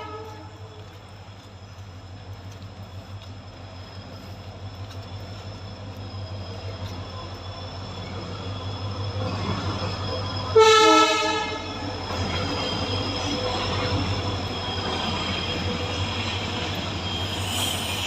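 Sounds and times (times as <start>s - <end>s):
train horn blast: 0.0s - 0.6s, 10.6s - 11.8s
train rumbling by: 0.0s - 18.0s.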